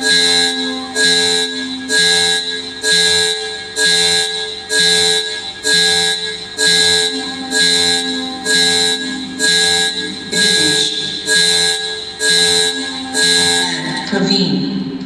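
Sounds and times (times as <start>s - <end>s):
loud music with heavy beat: 4.5s - 14.0s.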